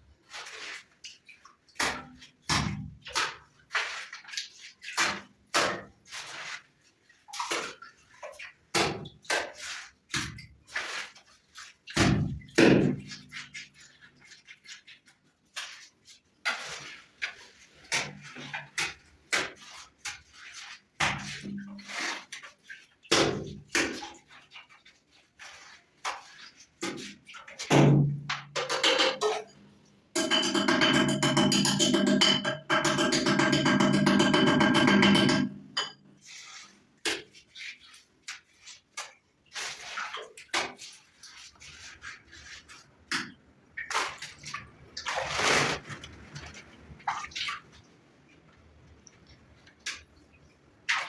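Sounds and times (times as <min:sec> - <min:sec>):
irregular knocks and clatters: 0:30.2 - 0:36.1.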